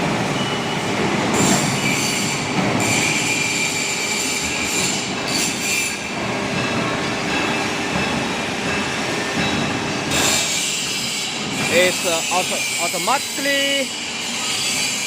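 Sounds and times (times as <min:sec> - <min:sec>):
steel-on-steel squeals: 0:00.3 - 0:06.2, 0:09.4 - 0:15.0
machine grinding noise: 0:01.0 - 0:15.0.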